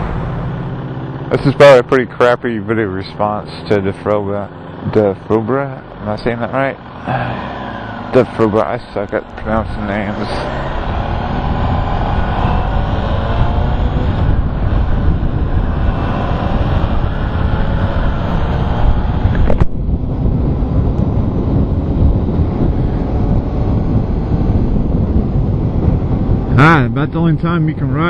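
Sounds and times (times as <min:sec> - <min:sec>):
motorcycle engine running: 0:00.0 - 0:28.0
wind rush on microphone: 0:07.8 - 0:28.0.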